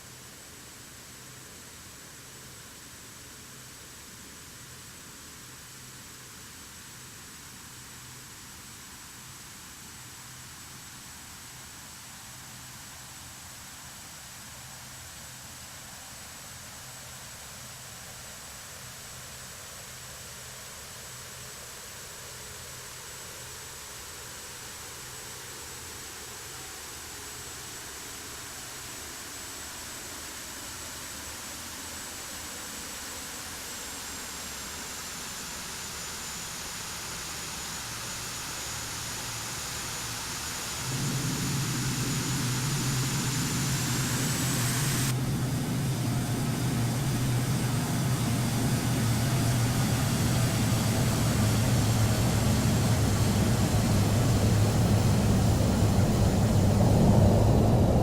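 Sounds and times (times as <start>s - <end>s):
thin high whine: 37.8s - 58.0s
deep rumble: 40.8s - 58.0s
jet engines roaring: 40.8s - 58.0s.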